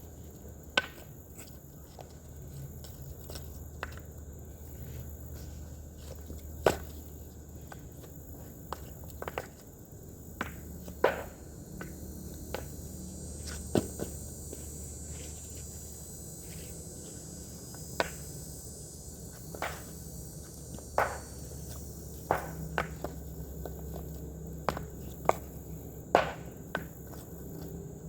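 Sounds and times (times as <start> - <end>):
tool striking rocky ground: 21.0 - 23.2, 26.2 - 26.9.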